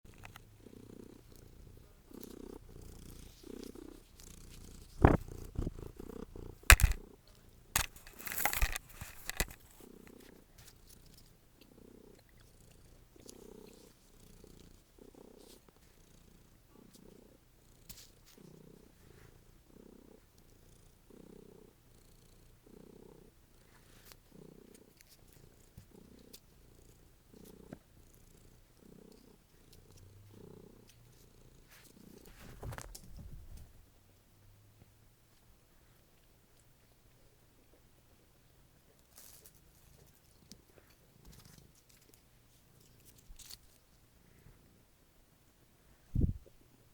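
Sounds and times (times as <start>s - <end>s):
cat purring loudly: 0.1s - 8.1s, 11.6s - 17.4s, 18.4s - 23.4s, 24.3s - 33.8s
rustle: 7.8s - 19.4s, 23.5s - 33.9s, 38.9s - 44.7s.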